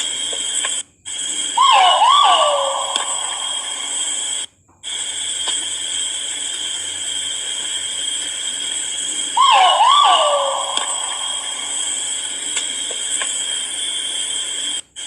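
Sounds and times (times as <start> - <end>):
steady high-pitched drone: 1.5 - 4.4, 7.3 - 13.5
pheasant two-note call: 1.6 - 4.1, 9.4 - 12.1.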